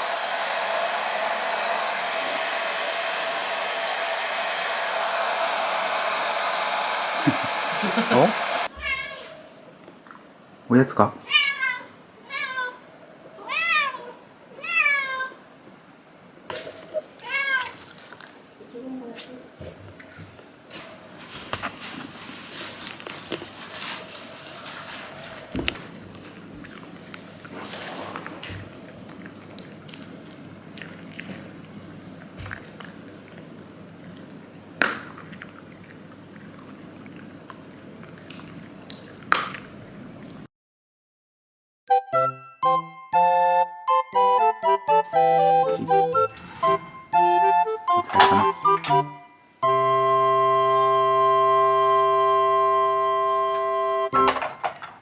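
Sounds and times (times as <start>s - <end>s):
low background noise: 8.1s - 40.5s.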